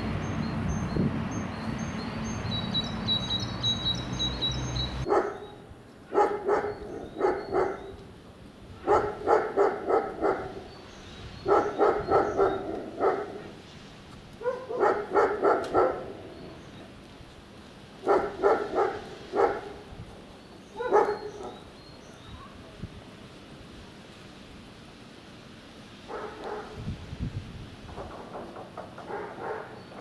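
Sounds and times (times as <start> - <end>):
bird chirping: 0.0 - 5.6, 10.5 - 13.1, 20.4 - 22.5
dog barking: 5.1 - 8.0, 8.8 - 10.7, 11.4 - 13.6, 14.4 - 16.2, 18.0 - 19.9, 20.8 - 21.7, 26.1 - 26.8, 29.1 - 29.8.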